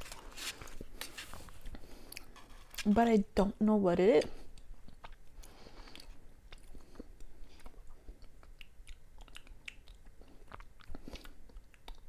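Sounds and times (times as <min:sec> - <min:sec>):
sticky chewing mouth smacks: 0:04.5 - 0:12.0.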